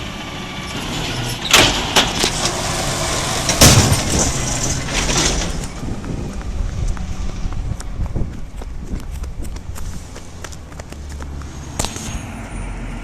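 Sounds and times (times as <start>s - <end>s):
garbage truck engine running: 0.0s - 9.9s
sharp clanking crashes: 0.9s - 5.7s.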